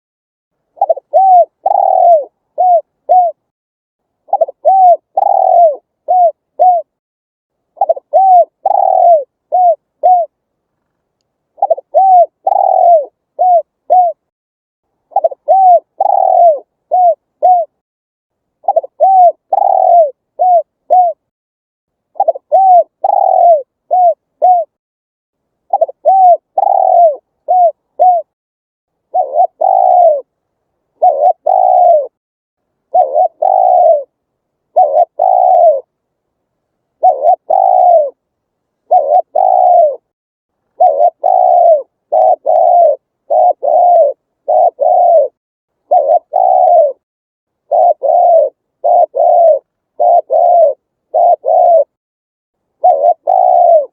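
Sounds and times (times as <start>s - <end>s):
dove cooing: 0.8s - 3.5s, 4.2s - 7.0s, 7.8s - 10.4s, 11.6s - 14.3s, 15.1s - 17.8s, 18.6s - 21.3s, 22.1s - 24.8s, 25.7s - 28.4s, 29.1s - 30.3s, 30.9s - 32.2s, 32.9s - 35.9s, 37.0s - 38.2s, 38.8s - 40.1s, 40.7s - 47.0s, 47.6s - 52.0s, 52.8s - 53.9s.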